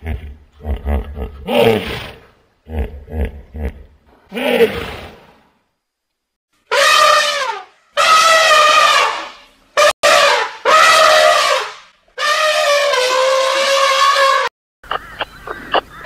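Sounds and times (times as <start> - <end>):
animal calling: 11.0 - 16.0.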